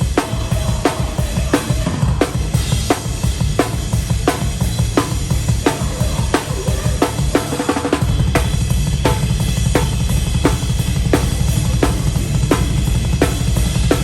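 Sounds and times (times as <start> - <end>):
fast bass drum strokes: 0.0 - 14.0.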